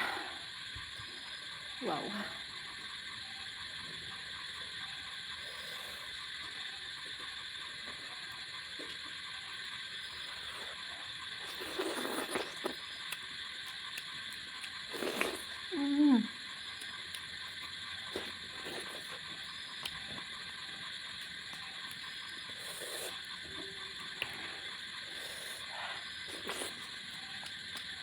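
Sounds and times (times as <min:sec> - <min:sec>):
chewing: 0:11.4 - 0:15.7, 0:16.6 - 0:28.0.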